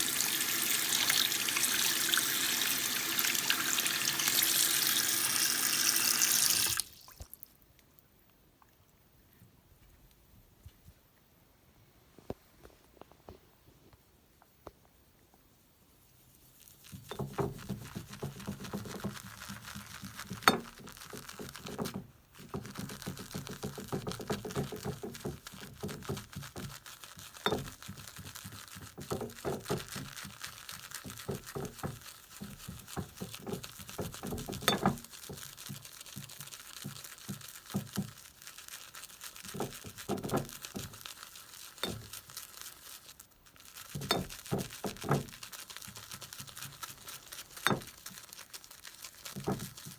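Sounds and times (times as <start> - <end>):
shaving brush whipping lather: 16.6 - 49.9
brush clicking against bowl: 17.1 - 35.9, 41.8 - 42.2, 47.5 - 48.2.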